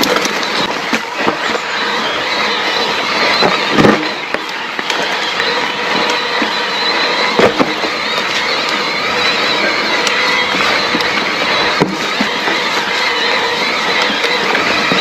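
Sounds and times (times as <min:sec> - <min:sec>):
bike rattling: 0:00.0 - 0:15.0
bike knocking over bumps: 0:03.2 - 0:15.0.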